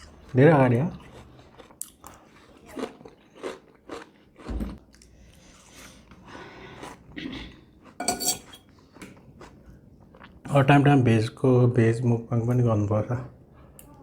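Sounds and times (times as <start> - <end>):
person chewing crunchy food: 0.0 - 10.4.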